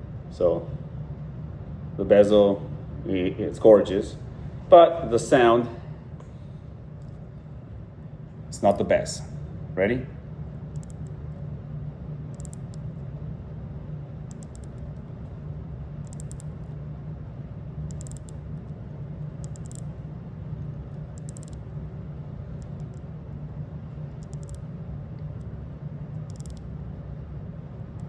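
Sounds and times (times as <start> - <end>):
steady low hum: 0.0 - 28.0
watch bezel clicking: 10.7 - 11.1, 12.3 - 12.8, 14.3 - 15.0, 16.0 - 16.7, 17.9 - 18.4, 19.4 - 20.0, 21.0 - 21.6, 22.6 - 23.1, 24.1 - 24.6, 26.2 - 26.6.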